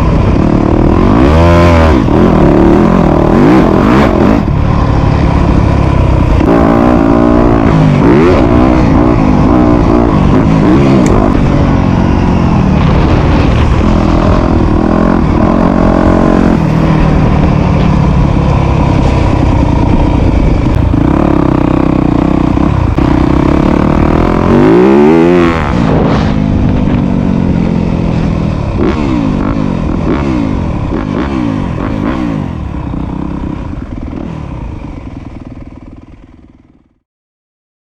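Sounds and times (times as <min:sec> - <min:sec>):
dirt bike engine revving: 0:00.0 - 0:36.6.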